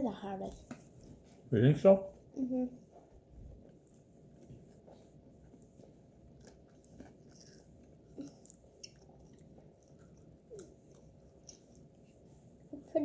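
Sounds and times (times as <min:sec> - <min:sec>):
chewing crispy chicken wings: 0:05.4 - 0:12.0.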